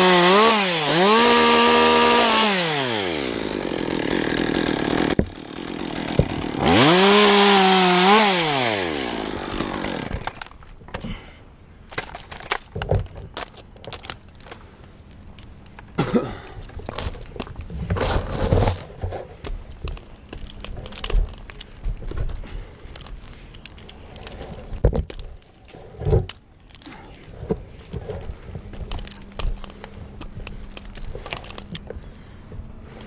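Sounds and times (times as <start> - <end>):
faint steady hum: 10.2 - 33.0
metal carabiners clinking: 11.9 - 15.9, 18.7 - 32.2.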